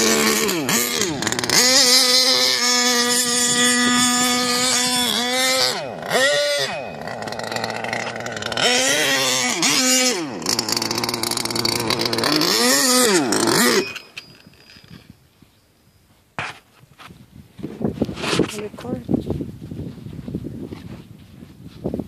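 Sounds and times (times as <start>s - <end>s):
two-stroke engine revving: 0.0s - 15.0s.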